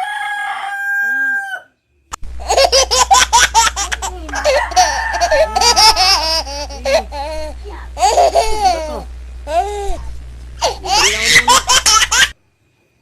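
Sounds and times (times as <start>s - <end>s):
rooster crowing: 0.0s - 1.8s, 4.2s - 6.6s
low steady hum: 2.1s - 12.4s.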